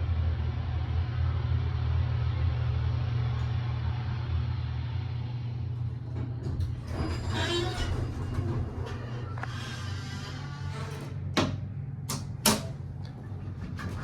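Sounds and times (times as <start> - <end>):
elevator hum and rumble: 0.0 - 14.0
rattling noise: 6.0 - 11.4.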